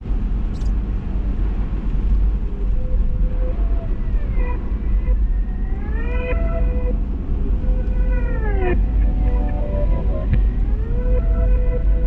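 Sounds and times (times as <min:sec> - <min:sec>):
car driving rumble: 0:00.0 - 0:12.0
faint squeaky gliding tones: 0:02.4 - 0:12.0.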